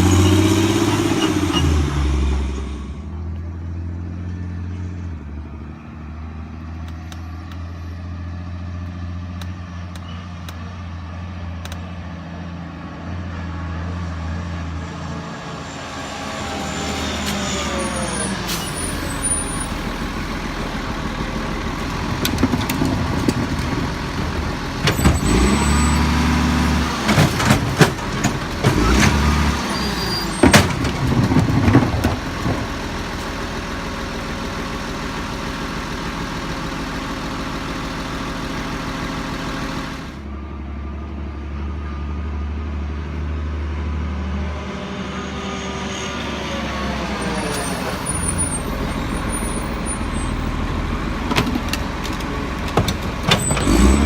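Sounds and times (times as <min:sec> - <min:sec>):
garbage truck engine running: 0:14.3 - 0:43.6, 0:46.9 - 0:54.0.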